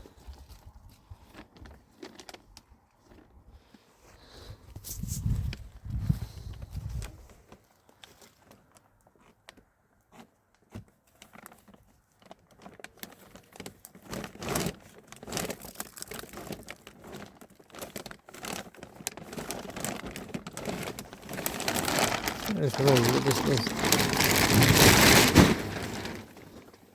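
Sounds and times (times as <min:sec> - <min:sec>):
plastic sheeting crinkling: 0:01.2 - 0:03.2, 0:11.2 - 0:26.9.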